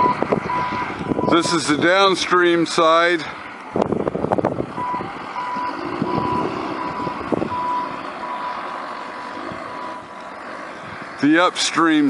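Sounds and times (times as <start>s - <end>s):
vehicle backup alarm beeping: 0.0s - 1.8s, 4.8s - 10.2s
vehicle engine rumble: 0.0s - 12.0s.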